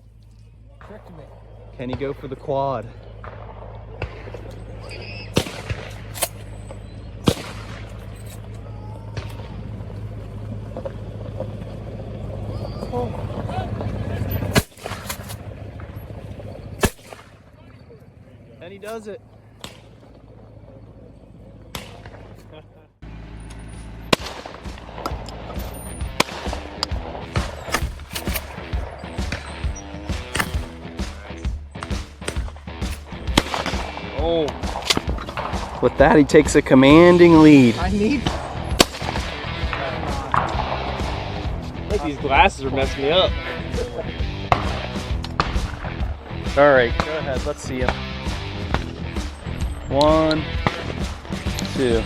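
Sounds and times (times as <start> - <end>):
shotgun shot: 5.1 - 8.4, 14.5 - 15.5, 16.8 - 17.4, 19.6 - 20.1, 21.7 - 22.5, 24.1 - 25.2, 26.1 - 35.8, 38.2 - 41.2
background music: 24.2 - 52.0.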